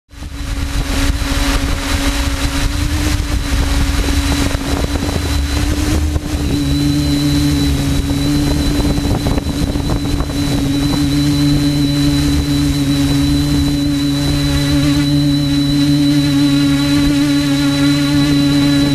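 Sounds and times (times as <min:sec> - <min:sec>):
drone propellers humming: 0:00.1 - 0:18.9
lower hum: 0:00.1 - 0:18.9
wind buffeting microphone: 0:00.1 - 0:18.9.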